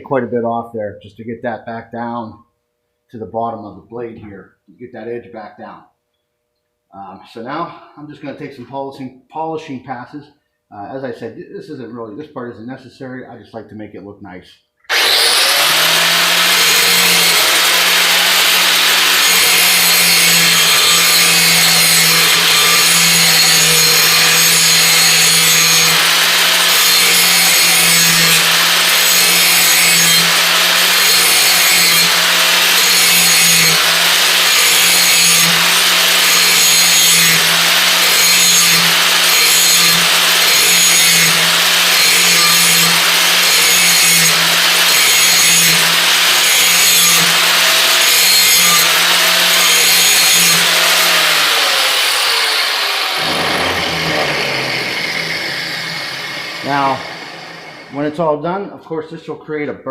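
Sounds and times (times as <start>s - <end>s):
grinder rasping on steel: 14.9s - 58.1s.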